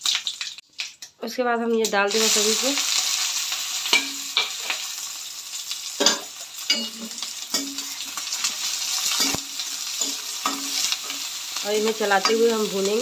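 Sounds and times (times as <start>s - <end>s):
food sizzling in hot oil: 0.0s - 13.0s
metal ladle scraping pan: 6.0s - 11.4s.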